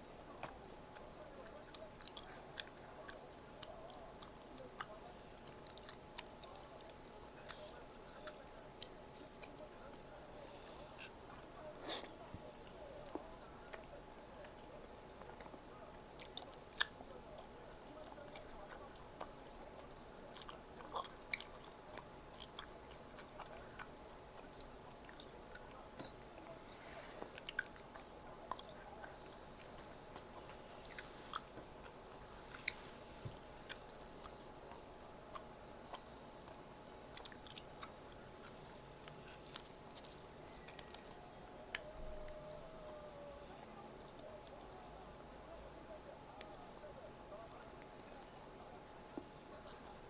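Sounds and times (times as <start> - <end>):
faint steady hum: 0.0 - 50.0
person chewing: 15.3 - 43.0.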